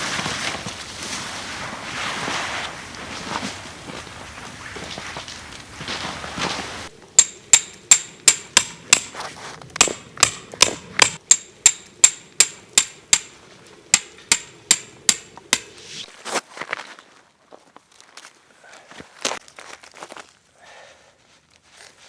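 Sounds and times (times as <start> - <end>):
hammer striking metal with ring: 7.2 - 9.1, 9.8 - 13.4, 14.0 - 15.8.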